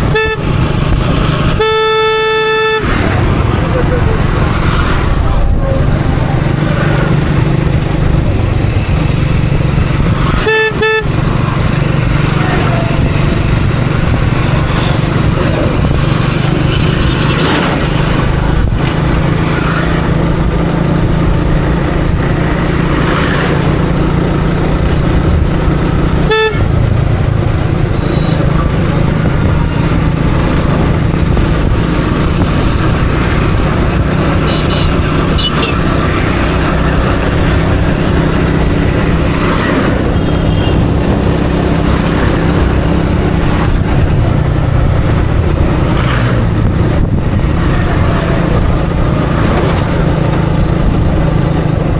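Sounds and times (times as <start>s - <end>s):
vehicle horn tooting: 0.0s - 0.6s, 1.5s - 3.3s, 10.3s - 11.4s, 26.2s - 26.8s, 28.0s - 28.6s, 34.4s - 36.0s, 40.0s - 41.0s
motorcycle engine running: 0.0s - 51.9s
street traffic: 0.0s - 51.9s.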